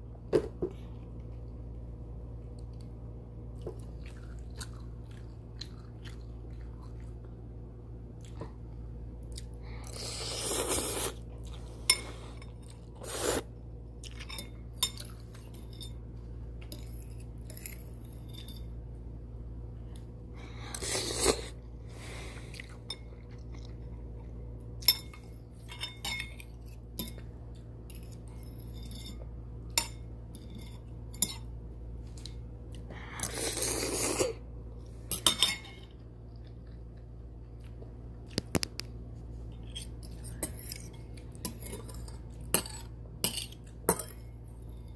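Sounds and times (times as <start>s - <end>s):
chewing: 3.6s - 7.4s
noodles being slurped: 9.9s - 11.7s.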